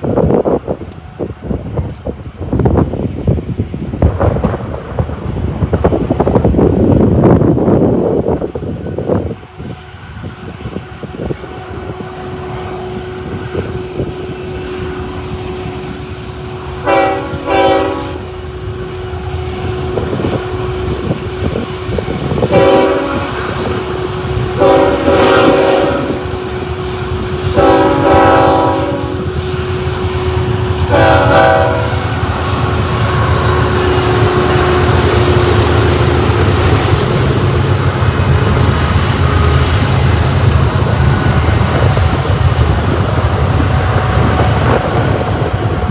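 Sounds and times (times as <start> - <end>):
train engine rumble: 0.0 - 45.9
locomotive air horn blasts: 9.6 - 45.9.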